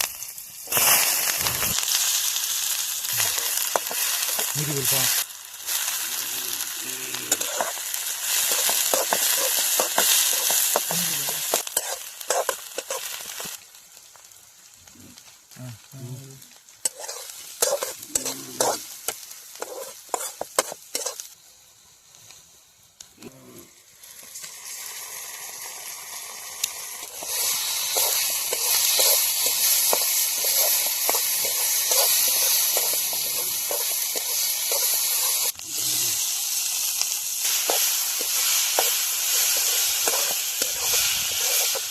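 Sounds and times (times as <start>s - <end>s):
meat sizzling in oil: 0.0s - 15.6s, 16.3s - 23.0s, 23.7s - 41.9s
spoon scraping and knocking pan: 8.4s - 13.4s, 16.9s - 21.2s, 27.1s - 35.5s, 37.6s - 41.9s.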